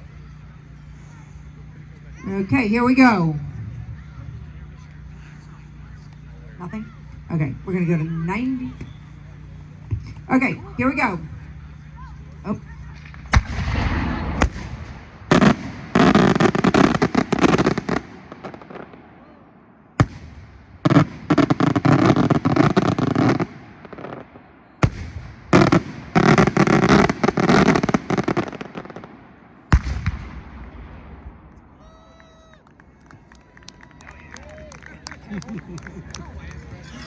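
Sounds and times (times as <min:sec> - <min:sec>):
firework crackling: 0:07.9 - 0:19.0
firework bangs: 0:12.9 - 0:19.2, 0:19.9 - 0:31.5.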